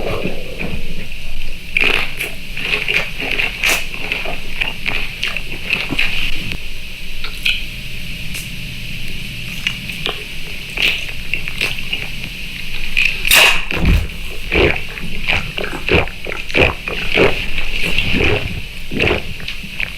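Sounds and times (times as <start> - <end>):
person chewing and slurping: 1.7 - 6.6, 9.4 - 19.9.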